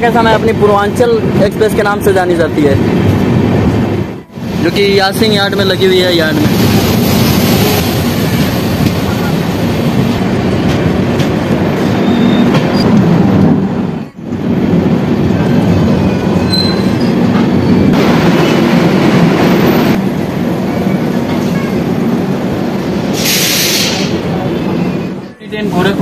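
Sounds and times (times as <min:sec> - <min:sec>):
train wheels rumbling on rails: 0:00.0 - 0:26.0
high wheel squeals: 0:11.9 - 0:13.0, 0:16.0 - 0:17.9.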